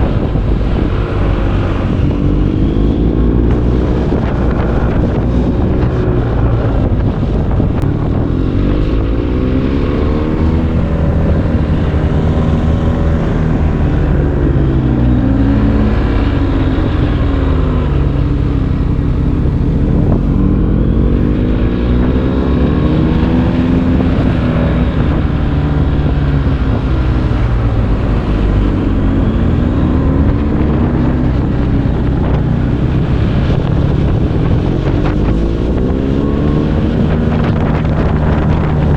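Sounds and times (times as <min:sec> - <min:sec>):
motorcycle engine revving: 0:00.0 - 0:38.9
wind over microphone: 0:00.0 - 0:38.9.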